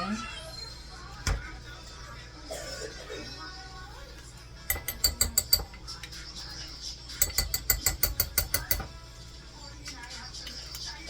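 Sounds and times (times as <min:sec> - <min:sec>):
metal utensil clinking on a dish: 0:04.7 - 0:06.2, 0:07.1 - 0:09.0.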